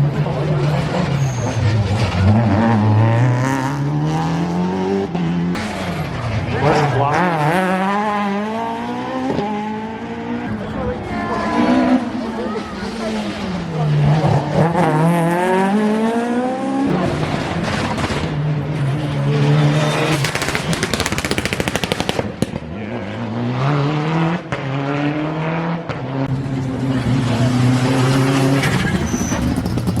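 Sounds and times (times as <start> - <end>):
rally car engines revving: 0.0 - 21.4, 22.0 - 30.0
engine crackles and bangs: 5.5 - 6.6, 16.9 - 19.0, 19.7 - 22.8, 28.5 - 30.0.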